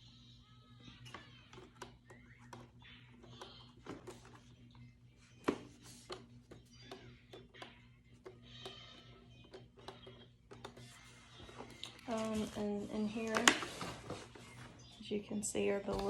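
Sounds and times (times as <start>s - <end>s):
faint music: 0.0s - 16.0s
plastic parts clicking and tapping: 1.1s - 4.5s, 5.4s - 12.6s.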